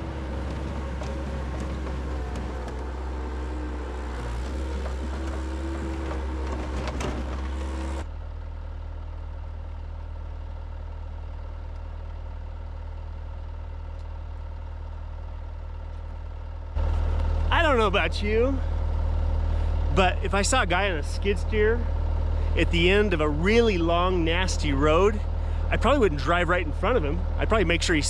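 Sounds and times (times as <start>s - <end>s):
engine knocks: 0.0s - 8.1s
skid steer diesel engine running: 0.0s - 28.0s.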